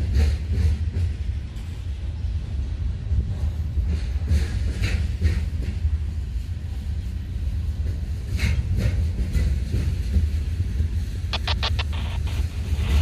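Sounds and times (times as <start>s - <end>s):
freight train wheels rumbling: 0.0s - 13.0s
short sharp clicks: 11.3s - 12.2s.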